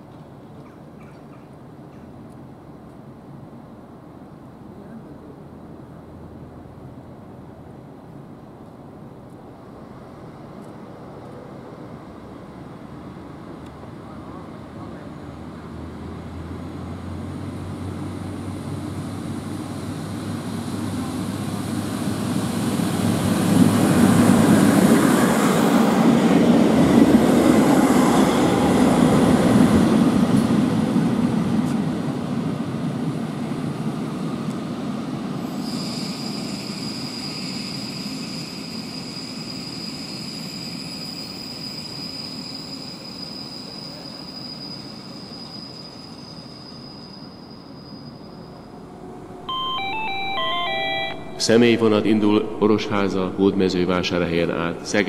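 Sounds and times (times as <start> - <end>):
train passing: 5.7 - 55.0
high-pitched wheel squeal: 35.6 - 51.4.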